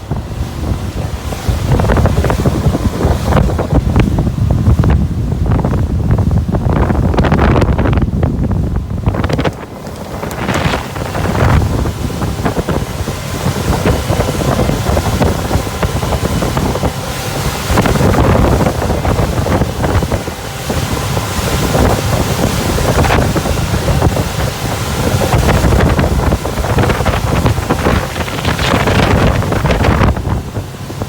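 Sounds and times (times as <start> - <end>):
boat engine drone: 0.0 - 31.0
wind buffeting microphone: 0.0 - 31.0
water rushing: 6.8 - 31.0.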